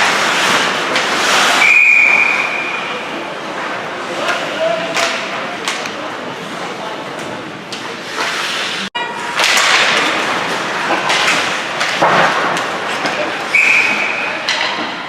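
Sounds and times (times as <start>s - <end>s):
noisy rink din: 0.0s - 15.0s
steady high whistle tone: 1.6s - 2.8s, 13.5s - 14.4s
hockey sticks and puck knocking: 4.2s - 6.0s, 9.3s - 15.0s.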